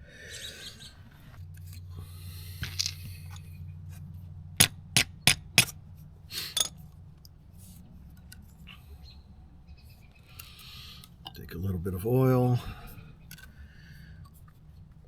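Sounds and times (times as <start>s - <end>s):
steady low hum: 0.0s - 15.0s
metal tools clicking: 6.4s - 6.9s, 13.3s - 13.5s.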